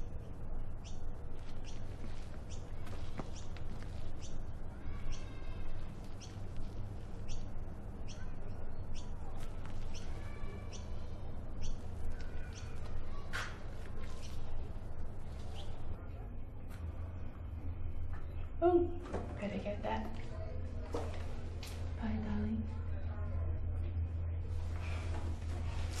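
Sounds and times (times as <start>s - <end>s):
birds chirping: 0.0s - 16.1s
harsh bird calls: 0.8s - 6.6s, 7.2s - 14.6s.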